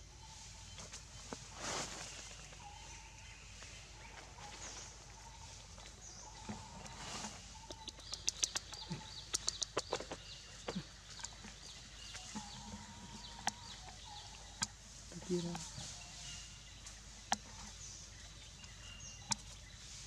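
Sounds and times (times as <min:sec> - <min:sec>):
sharp clicks: 0:08.0 - 0:10.1.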